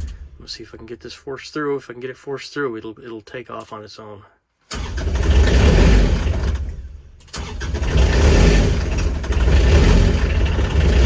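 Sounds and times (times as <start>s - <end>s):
diesel engine running rough: 4.8s - 6.7s, 7.4s - 11.0s.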